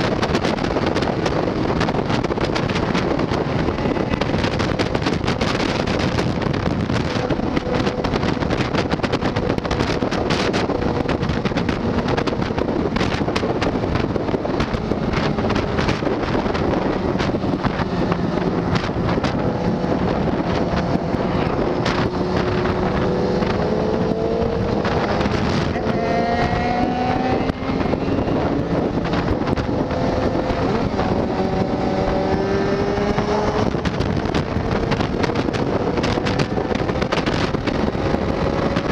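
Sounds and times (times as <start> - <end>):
motorcycle engine accelerating: 0.0 - 38.9
wind noise on microphone: 0.0 - 38.9.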